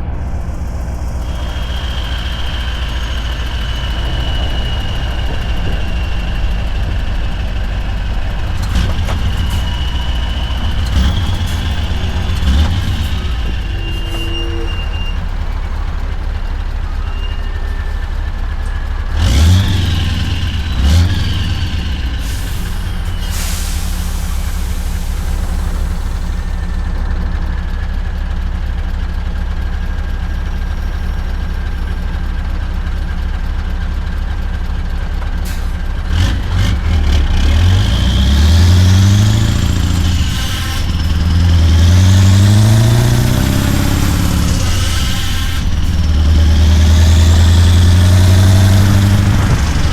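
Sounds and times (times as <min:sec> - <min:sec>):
truck diesel engine running: 0:00.0 - 0:49.9
short loud engine bursts: 0:19.6 - 0:27.2
air hiss: 0:22.2 - 0:27.0.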